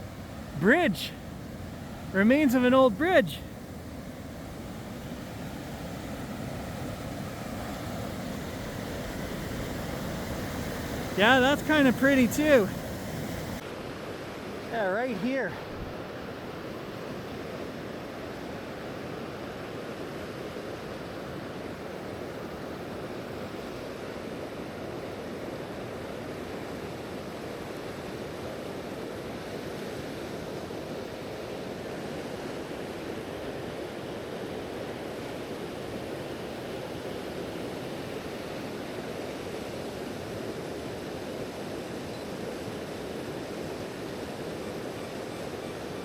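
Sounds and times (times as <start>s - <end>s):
waterfall rushing: 0.0s - 4.2s, 5.2s - 13.6s.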